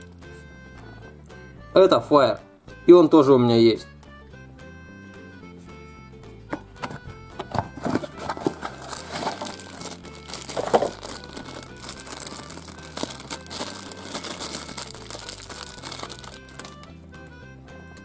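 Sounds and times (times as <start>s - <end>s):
plastic wrapper crinkling: 7.6s - 16.9s.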